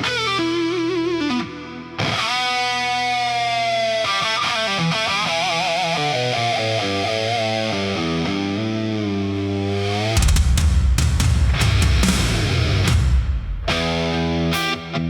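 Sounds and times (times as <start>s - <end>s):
distorted electric guitar solo: 0.0s - 10.2s, 13.7s - 15.0s.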